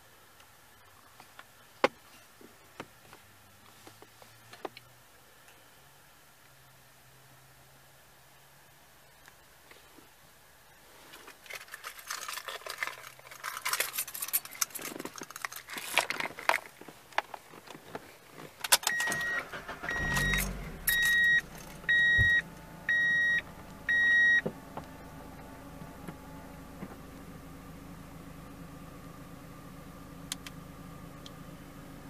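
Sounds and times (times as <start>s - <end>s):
keys jangling: 11.5s - 16.5s
car engine starting and idling: 12.0s - 32.0s
ignition key click: 18.7s - 22.4s
dashboard warning chime: 18.9s - 24.5s.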